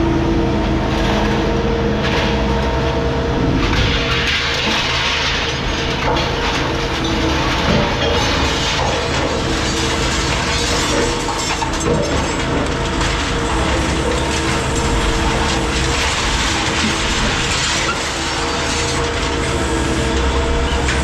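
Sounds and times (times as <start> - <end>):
heavy machinery humming: 0.0 - 21.0
rattling and clattering: 3.6 - 19.6.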